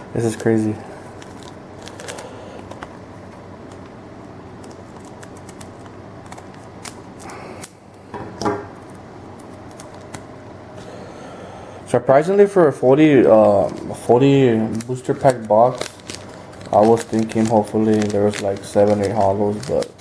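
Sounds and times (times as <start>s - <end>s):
trading cards rustling: 0.2s - 4.0s, 4.6s - 7.7s, 8.8s - 10.3s, 13.0s - 20.0s
foil pack tearing and crinkling: 1.1s - 2.7s, 4.6s - 7.7s, 9.4s - 10.2s, 13.2s - 20.0s.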